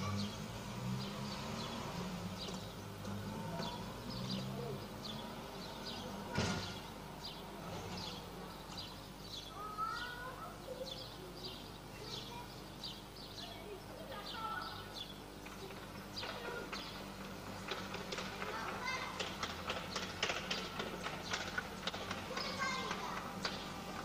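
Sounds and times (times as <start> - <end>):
small birds chirping: 0.0 - 24.0
steady background hum: 3.9 - 24.0.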